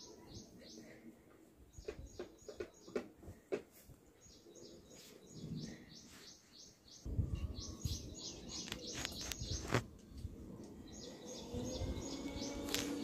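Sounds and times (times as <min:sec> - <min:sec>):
small bird chirping: 0:04.2 - 0:10.2, 0:10.8 - 0:13.0.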